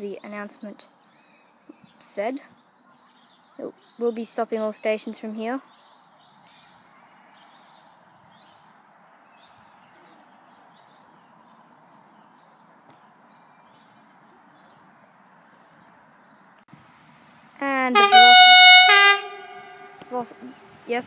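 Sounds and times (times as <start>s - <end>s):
small birds chirping: 0.0s - 16.7s.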